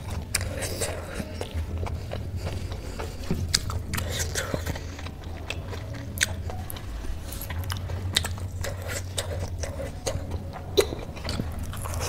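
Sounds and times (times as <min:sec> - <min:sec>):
chewing food: 0:00.0 - 0:12.0
low steady hum: 0:00.0 - 0:12.0.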